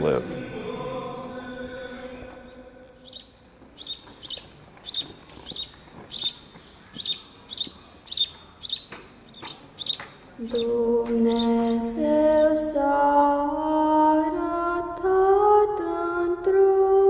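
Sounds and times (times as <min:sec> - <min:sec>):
small songbird chirping: 0:03.0 - 0:12.6.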